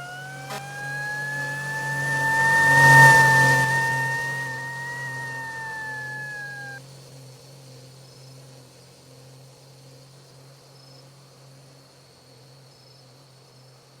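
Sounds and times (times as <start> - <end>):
faint high-pitched whine: 0.0 - 6.8
low engine-like hum: 0.0 - 6.8.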